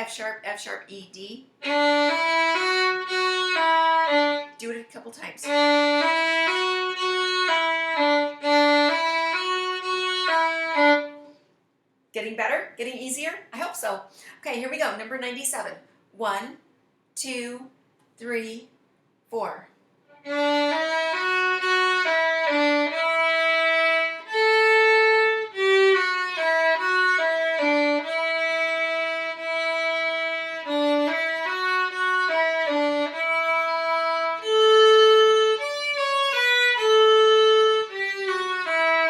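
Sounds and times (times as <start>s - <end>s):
bowed string instrument melody: 1.6s - 11.4s, 20.1s - 39.0s.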